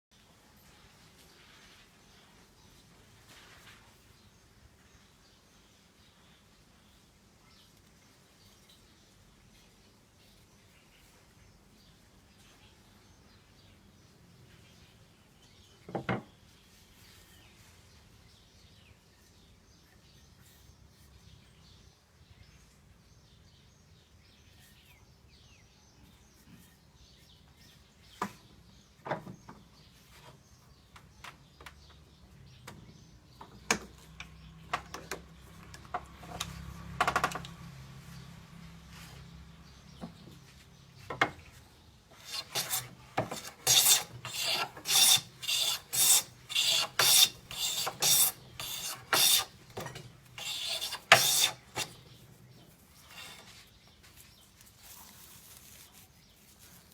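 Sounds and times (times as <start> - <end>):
hand plane shaving wood: 42.1 - 53.8.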